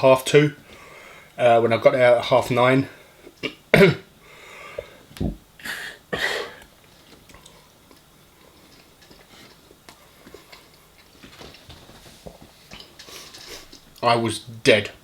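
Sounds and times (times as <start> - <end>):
soft chewing and mouth clicks: 6.6 - 14.0.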